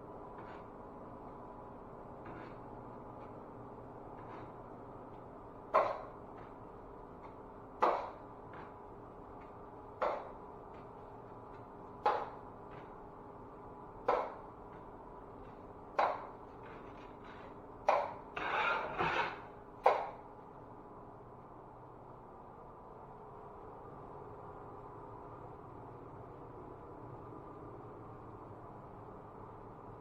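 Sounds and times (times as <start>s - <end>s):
drywall tool scraping wall: 0.2s - 1.1s, 2.0s - 8.8s, 9.4s - 10.8s, 15.4s - 20.1s.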